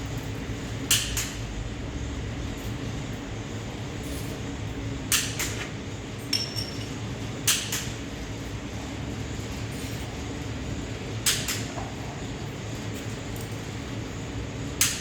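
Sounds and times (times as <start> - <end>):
steady low hum: 0.0 - 15.0
metal tools clinking: 6.4 - 6.9.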